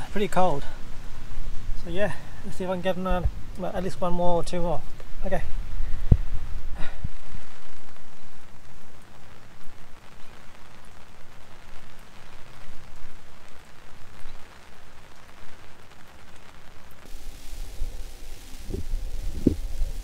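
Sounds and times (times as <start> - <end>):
rain falling: 0.0 - 20.0
low rumble: 17.2 - 20.0.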